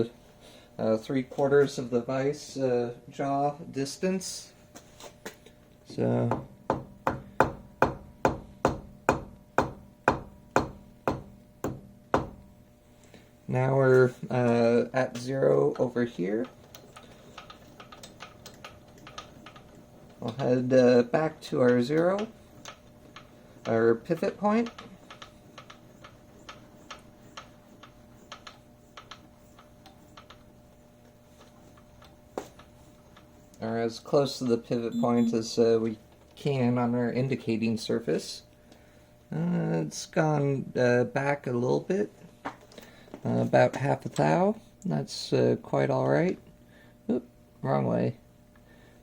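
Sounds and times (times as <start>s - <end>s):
faint steady hum: 0.0s - 49.0s
milling machine crank ticking: 15.7s - 30.7s.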